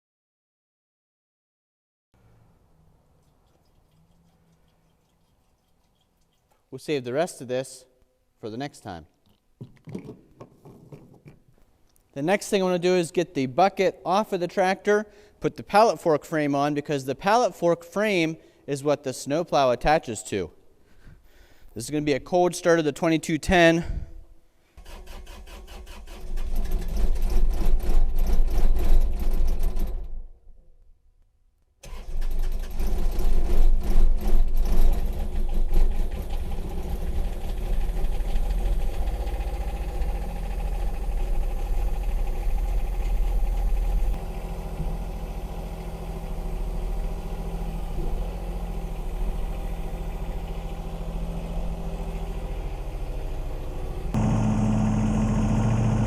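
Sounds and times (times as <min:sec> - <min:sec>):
starter motor cranking: 0:24.8 - 0:30.1, 0:31.8 - 0:50.7
diesel tractor engine idling: 0:36.5 - 0:56.0.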